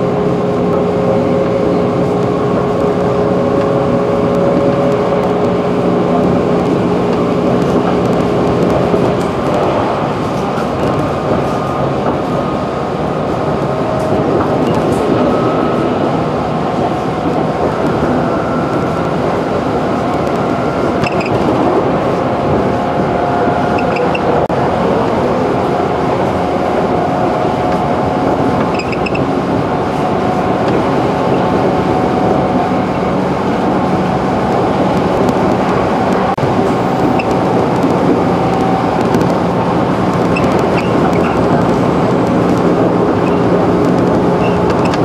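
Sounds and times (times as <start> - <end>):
wheels rumbling on rails: 0.0 - 45.0.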